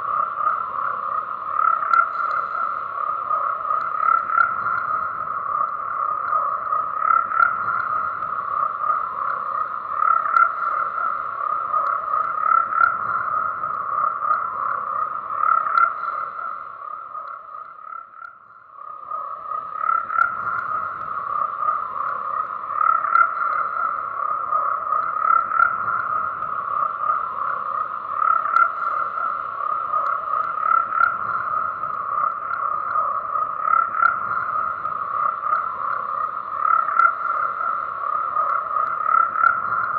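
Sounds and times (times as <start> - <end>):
chorus of frogs croaking: 0.0 - 39.9.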